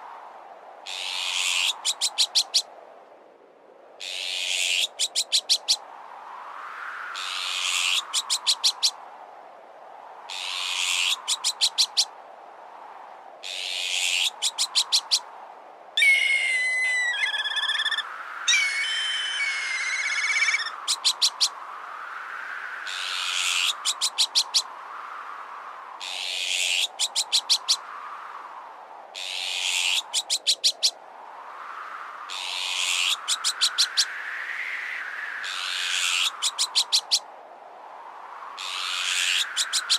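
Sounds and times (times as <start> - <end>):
wind gusts: 0.0 - 39.9
harsh rasping bird call: 16.0 - 21.3
whistled wavering bird calls: 16.0 - 21.6.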